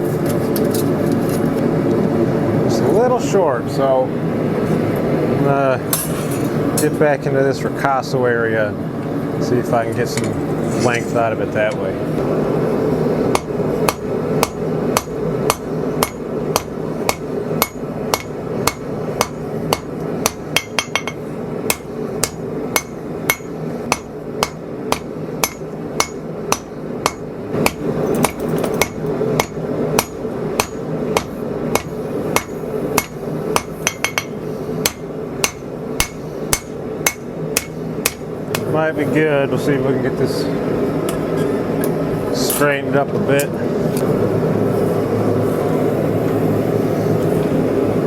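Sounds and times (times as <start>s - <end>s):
steady background noise: 0.0s - 48.0s
hammer striking blade on anvil: 13.4s - 38.7s.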